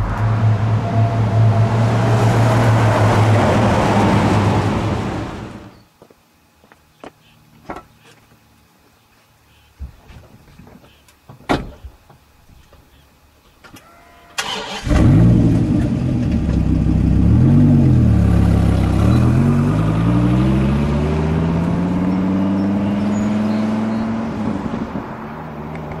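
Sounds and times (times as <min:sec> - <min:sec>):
car engine revving away: 0:14.4 - 0:26.0.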